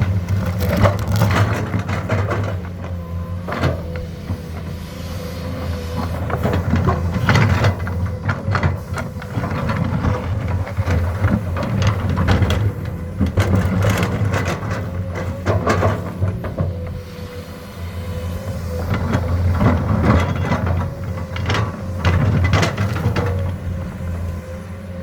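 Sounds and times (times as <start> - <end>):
machine clanks and rattles: 0.0 - 4.0, 6.1 - 16.9, 18.9 - 23.7
excavator diesel engine running: 0.0 - 25.0.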